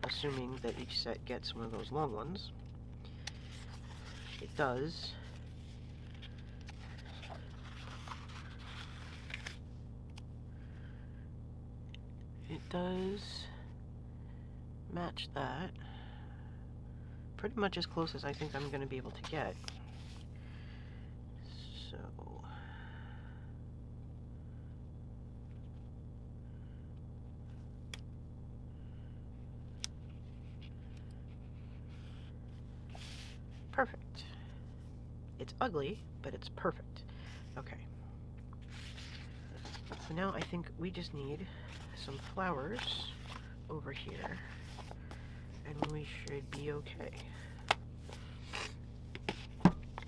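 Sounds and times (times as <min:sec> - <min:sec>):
paper sticker sheets rustling: 0:00.0 - 0:02.5, 0:03.1 - 0:09.6, 0:38.6 - 0:50.0
low hum: 0:00.0 - 0:50.0.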